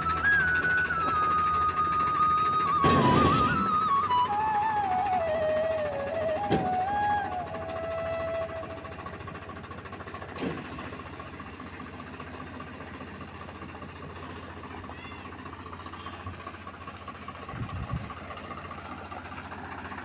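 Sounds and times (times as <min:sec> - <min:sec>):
flute music: 0:00.0 - 0:09.7
tractor engine idling: 0:00.0 - 0:20.0.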